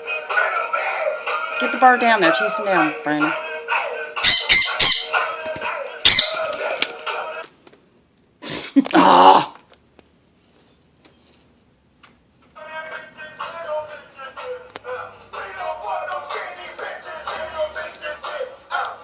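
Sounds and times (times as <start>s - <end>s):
loud sharp animal calls: 6.1s - 6.6s.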